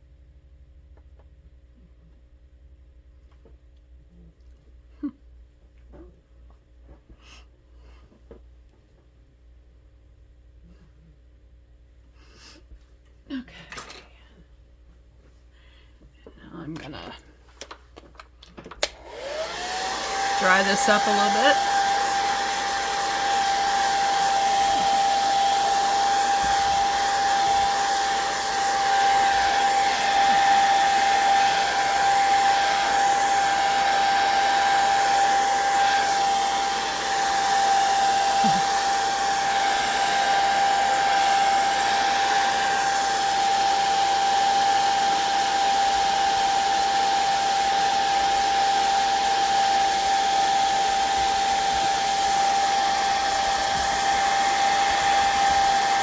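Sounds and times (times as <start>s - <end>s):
hot-air dryer blowing: 18.8s - 56.0s.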